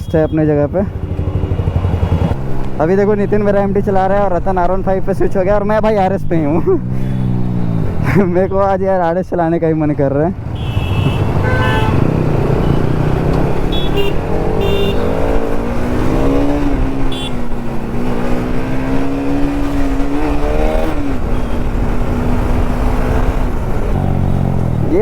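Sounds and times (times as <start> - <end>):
motorcycle engine running: 0.9 - 2.8, 10.4 - 25.0.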